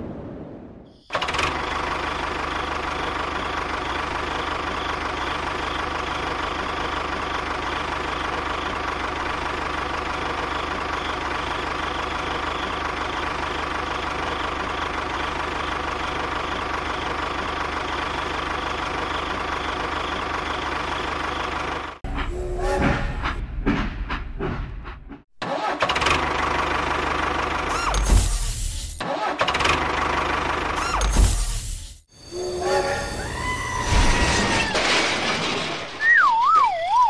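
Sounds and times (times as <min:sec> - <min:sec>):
tractor engine running: 0:01.1 - 0:24.3, 0:25.8 - 0:31.7.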